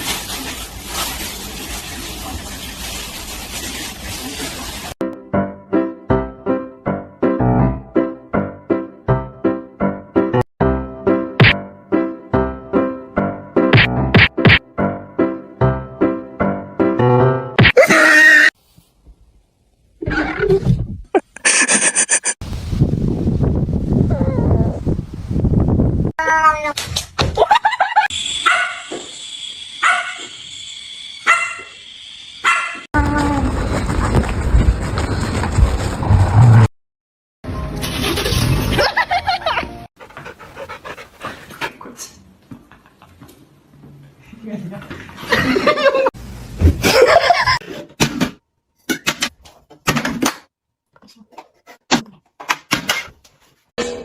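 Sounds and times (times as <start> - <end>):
person laughing: 21.1 - 22.4, 27.3 - 28.1, 44.7 - 46.1, 46.8 - 47.6
dog barking: 28.4 - 28.9, 29.8 - 30.3, 31.2 - 31.8, 32.4 - 32.9.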